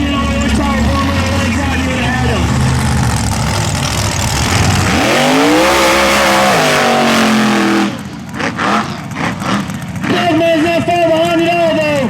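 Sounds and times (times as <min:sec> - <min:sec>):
loud wash of noise: 0:00.0 - 0:08.0
truck engine at full throttle: 0:00.0 - 0:12.0.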